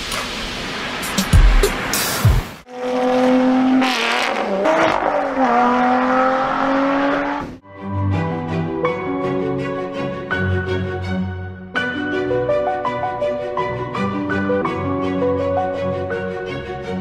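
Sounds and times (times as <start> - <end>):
car engine revving: 2.6 - 7.6.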